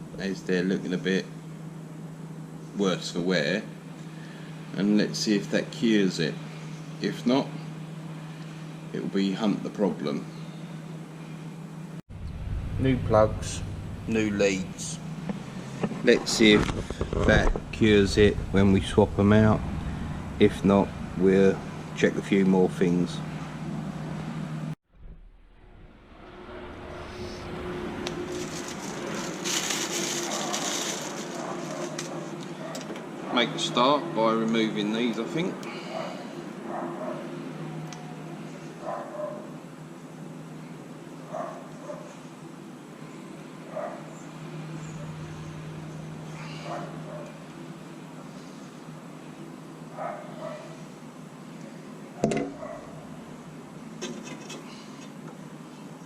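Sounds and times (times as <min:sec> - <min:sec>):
steady low hum: 0:00.0 - 0:38.9, 0:42.5 - 0:56.0
vehicle engine running: 0:12.1 - 0:24.8, 0:25.6 - 0:32.6, 0:44.4 - 0:47.2.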